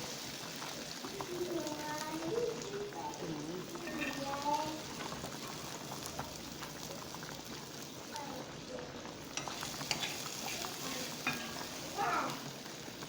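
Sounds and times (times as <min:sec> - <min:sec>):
food sizzling in a pan: 0:00.0 - 0:13.0
spoon stirring: 0:03.7 - 0:05.6, 0:09.4 - 0:11.9
spoon clicking against pan: 0:11.2 - 0:11.7.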